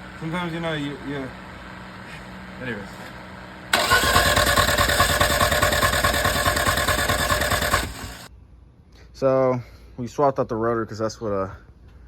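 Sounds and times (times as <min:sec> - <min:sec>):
starter motor cranking engine: 0:03.7 - 0:08.3.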